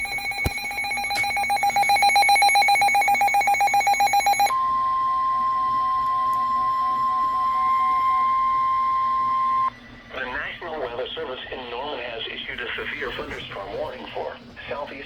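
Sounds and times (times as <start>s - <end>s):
rapidly pulsing electronic beep: 0.0s - 4.6s
steady warning alarm tone: 0.0s - 10.5s.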